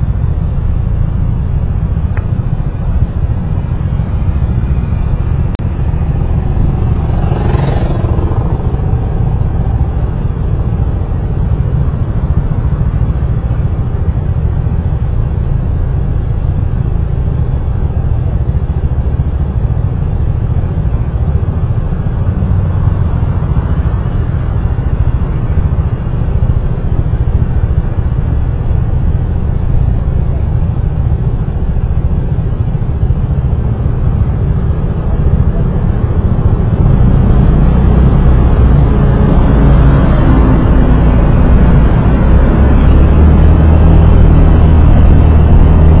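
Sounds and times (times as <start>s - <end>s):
vehicle road and wind rumble: 0.0s - 46.0s.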